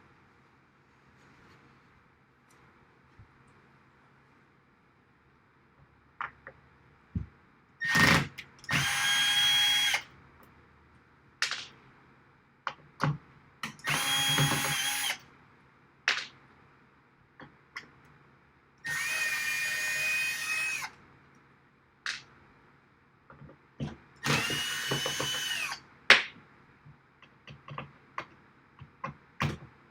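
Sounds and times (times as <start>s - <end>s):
power drill whining: 7.8s - 10.0s, 13.8s - 15.2s, 18.9s - 20.9s, 24.2s - 25.8s.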